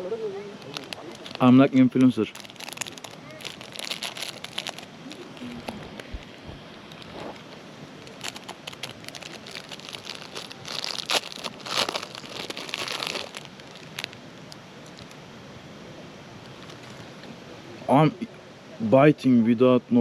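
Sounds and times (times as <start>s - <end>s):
wrapper crinkling and rustling: 0.6s - 6.4s, 8.0s - 14.2s.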